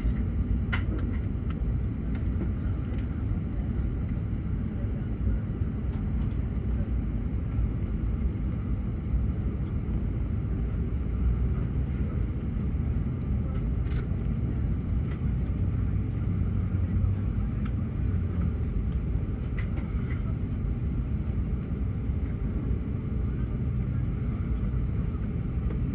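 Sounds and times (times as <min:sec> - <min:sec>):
aircraft engines idling: 0:00.0 - 0:25.9.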